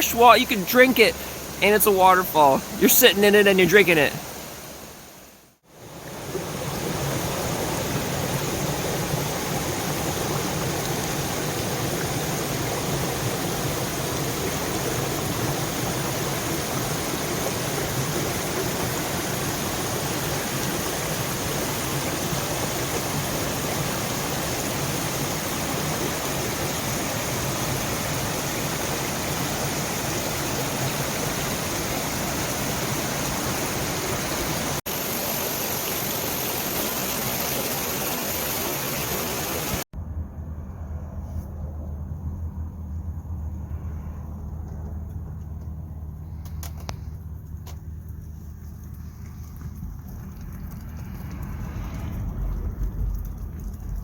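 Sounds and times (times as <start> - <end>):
water rushing from small waterfall: 0.0 - 39.9.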